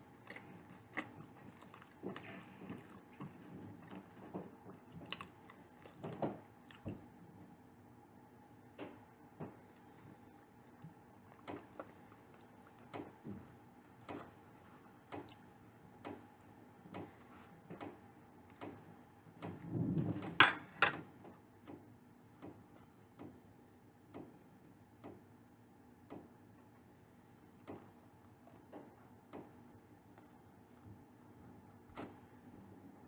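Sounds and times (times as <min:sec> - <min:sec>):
chewing pastry: 0:00.0 - 0:07.6, 0:09.5 - 0:19.6.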